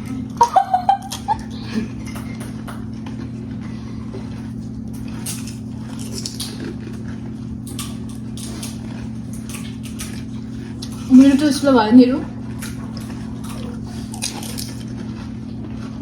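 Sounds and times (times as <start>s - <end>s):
eating mouth sounds: 0.0s - 16.0s
steady low hum: 0.0s - 16.0s
person squealing or laughing: 0.4s - 1.5s
crisp shells crunching: 4.9s - 11.0s.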